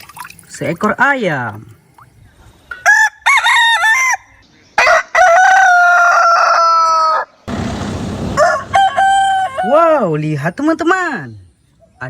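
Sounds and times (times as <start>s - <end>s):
rooster crowing: 2.8s - 7.5s, 8.2s - 10.1s.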